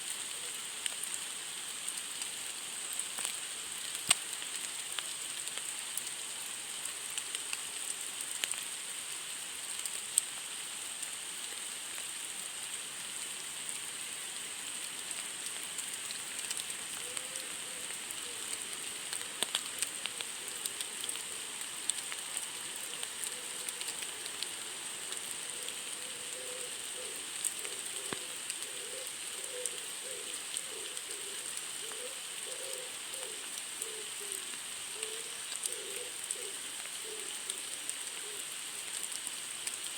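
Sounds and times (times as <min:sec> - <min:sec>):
steady rain hissing: 0:00.0 - 0:39.9.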